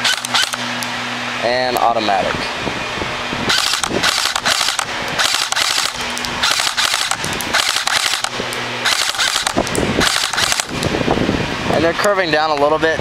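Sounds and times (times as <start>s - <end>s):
airsoft rifle firing bursts: 0.0s - 0.6s, 3.5s - 10.8s.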